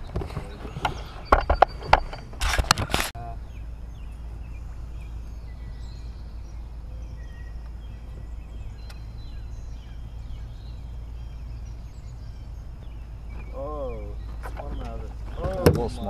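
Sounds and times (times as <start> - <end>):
birds chirping: 0.0 - 16.0
steady low rumble: 0.0 - 16.0
sharp clicks: 8.8 - 9.0.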